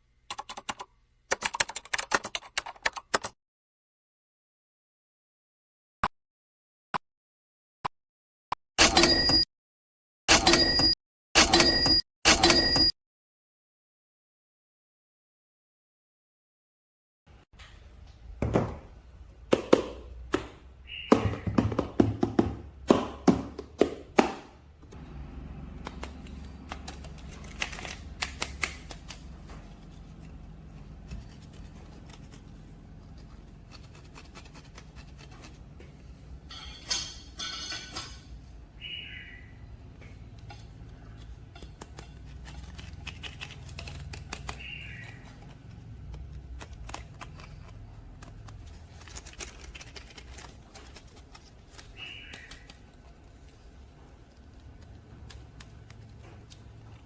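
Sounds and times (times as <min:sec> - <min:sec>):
packaging rustling: 0:25.8 - 0:35.8, 0:41.3 - 0:57.0.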